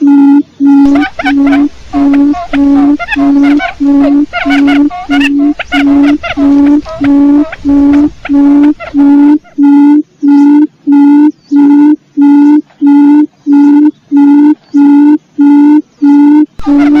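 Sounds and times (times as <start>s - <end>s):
higher wavering notes: 0.3s - 11.9s, 16.3s - 17.0s
quail hooting call: 0.7s - 11.9s, 13.0s - 17.0s.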